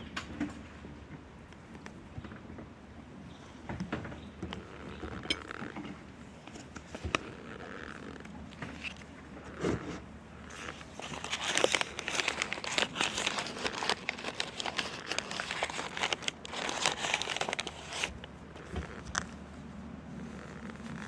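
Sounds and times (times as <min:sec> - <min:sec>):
cornstarch crunching: 0:10.5 - 0:19.3.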